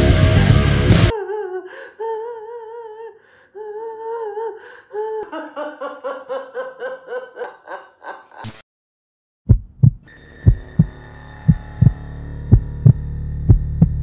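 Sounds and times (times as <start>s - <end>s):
rapid laughter: 5.2s - 8.4s.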